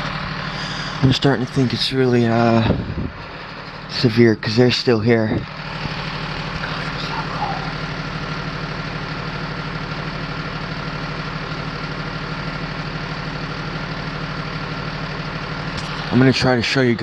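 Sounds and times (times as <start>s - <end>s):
thin steady whine: 0.0s - 8.9s
engine idling: 0.0s - 17.0s.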